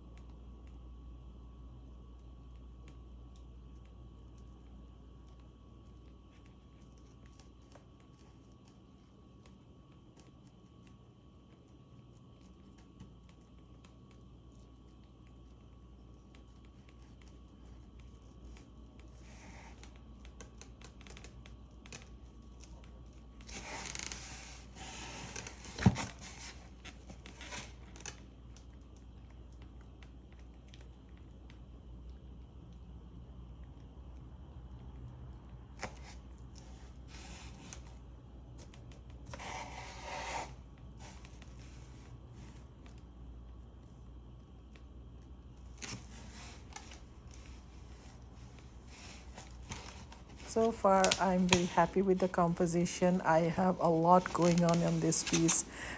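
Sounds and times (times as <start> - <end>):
low room hum: 0.0 - 55.9
crinkling tearing rustle: 49.4 - 55.9.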